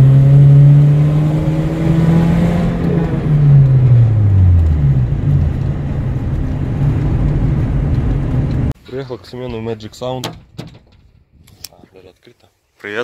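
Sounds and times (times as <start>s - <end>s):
car engine from inside cabin: 0.0s - 8.7s
road noise: 0.0s - 8.8s.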